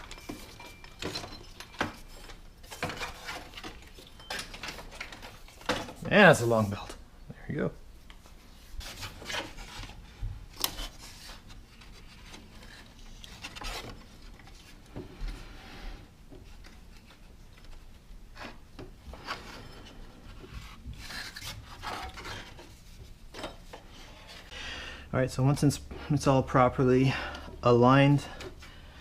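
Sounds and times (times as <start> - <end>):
rubber belt rubbing and scraping: 18.3 - 23.1.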